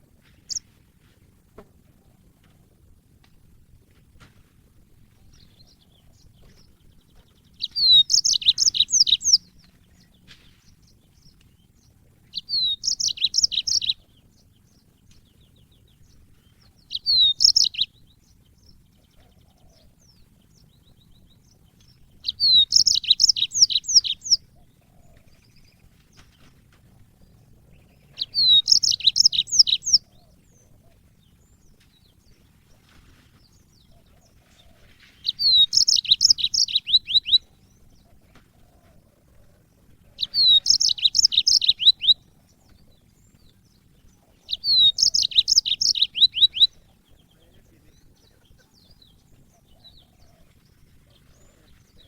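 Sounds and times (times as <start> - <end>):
canary singing: 0.0 - 0.8, 5.2 - 52.0.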